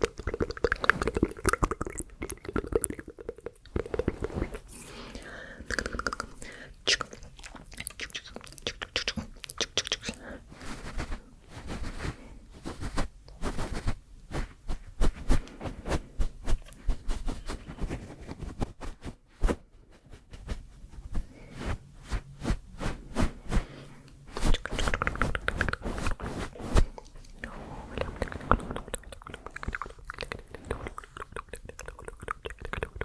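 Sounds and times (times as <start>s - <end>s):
mouth clicks: 5.6s - 10.2s, 27.0s - 33.0s
rustling: 10.5s - 31.3s.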